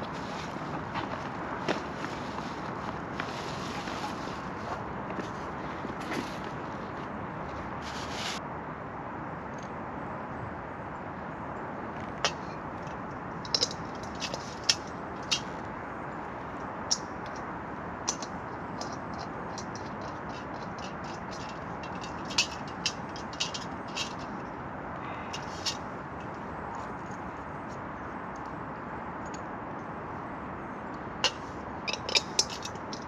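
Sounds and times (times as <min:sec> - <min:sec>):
campfire crackling: 0:13.2 - 0:26.9.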